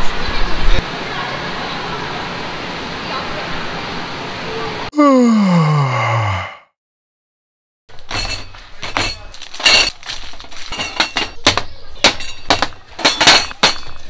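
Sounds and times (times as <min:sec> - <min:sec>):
dishes and cutlery clinking: 0:08.0 - 0:14.0.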